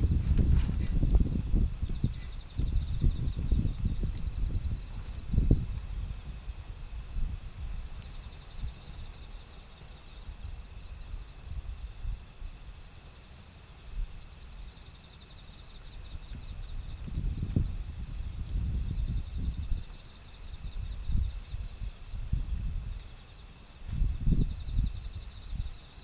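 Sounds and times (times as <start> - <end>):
wind gusting against microphone: 0.0 - 12.8, 15.8 - 26.0
insects chirping: 0.0 - 26.0.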